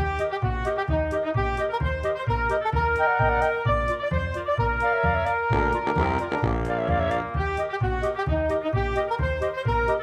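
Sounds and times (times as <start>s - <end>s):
brass-led tune: 0.0s - 10.0s
bouncing beat: 5.5s - 7.3s.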